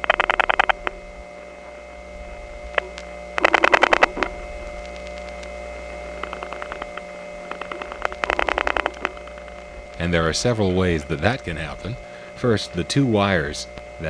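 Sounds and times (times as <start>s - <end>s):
telephone dial tone: 0.0s - 1.0s, 2.7s - 10.0s
dial pulse clicks: 0.0s - 1.8s, 2.6s - 11.3s
whining power-supply noise: 0.0s - 14.0s.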